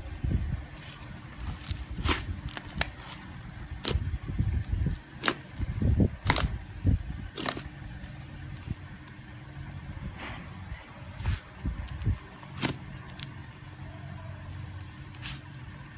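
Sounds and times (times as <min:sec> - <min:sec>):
soft squishing of slime: 0:00.7 - 0:05.5, 0:07.3 - 0:09.5, 0:11.1 - 0:13.8
slime clicking and popping: 0:05.2 - 0:05.4.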